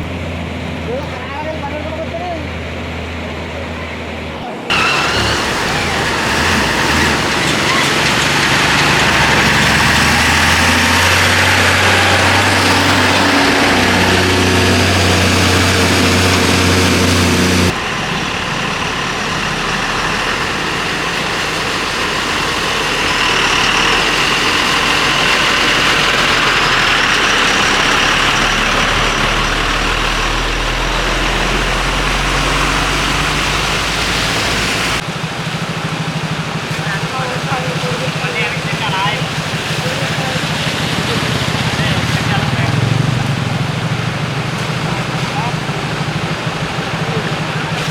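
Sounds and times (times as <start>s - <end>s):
rushing water wash: 0.0s - 47.9s
vehicle engine: 0.0s - 47.9s.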